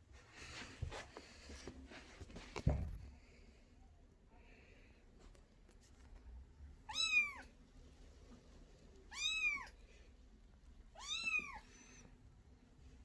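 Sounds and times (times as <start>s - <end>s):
kitten meowing: 6.9s - 7.5s, 9.1s - 9.8s, 11.0s - 11.7s.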